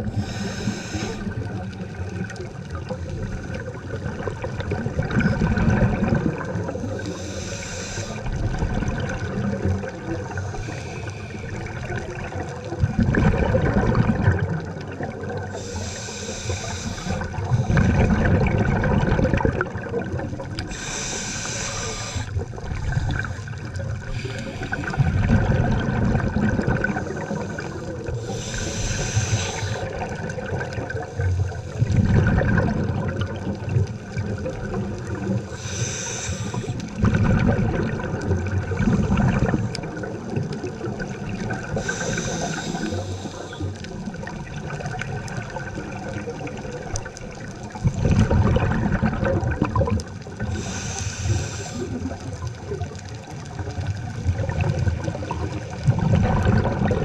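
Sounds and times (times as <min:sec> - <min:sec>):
regulator hiss on inhale: 0:00.0 - 0:01.6, 0:06.7 - 0:08.5, 0:09.9 - 0:12.0, 0:15.4 - 0:17.9, 0:20.6 - 0:25.3, 0:26.8 - 0:30.1, 0:35.4 - 0:37.0, 0:41.6 - 0:44.2, 0:50.4 - 0:52.4
exhaled air bubbling underwater: 0:00.0 - 0:57.0.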